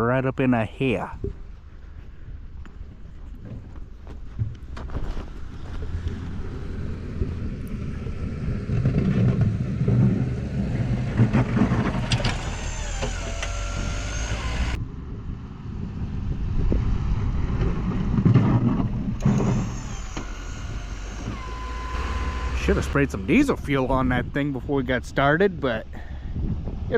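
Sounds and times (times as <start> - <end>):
pickup truck engine under load: 2.9 - 14.8, 15.7 - 24.6
high-pitched squeals: 11.9 - 14.8, 19.2 - 23.8.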